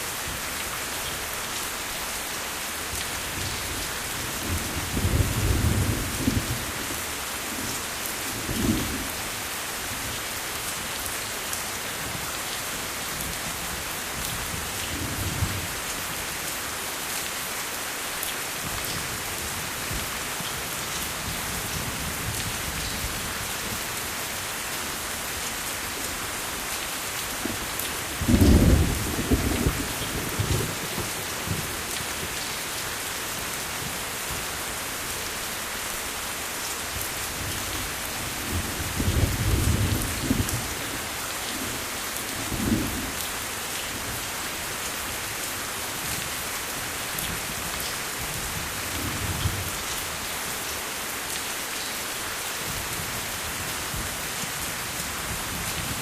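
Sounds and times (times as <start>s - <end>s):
heavy rain: 0.0s - 56.0s
thunder rumbling: 28.2s - 31.7s.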